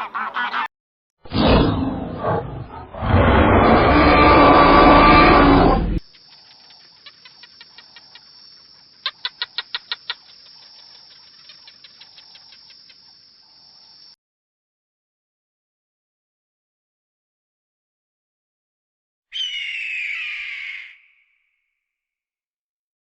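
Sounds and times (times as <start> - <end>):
harsh animal call: 1.3 - 6.0, 19.3 - 21.3
bird chirping rapidly: 19.3 - 21.4.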